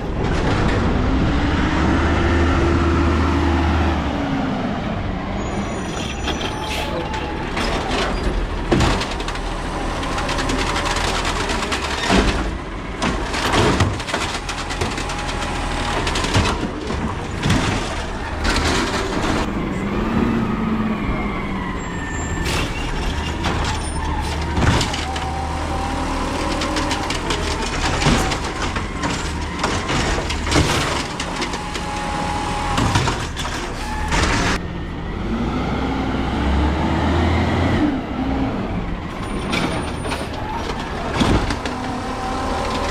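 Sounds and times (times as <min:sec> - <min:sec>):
diesel truck engine: 0:00.0 - 0:42.9
garbage cans banging: 0:07.6 - 0:19.5, 0:22.8 - 0:34.6, 0:39.4 - 0:42.9.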